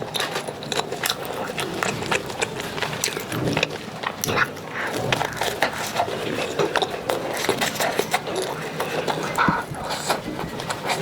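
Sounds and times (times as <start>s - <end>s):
chewing and lip-smacking: 0.0s - 11.0s.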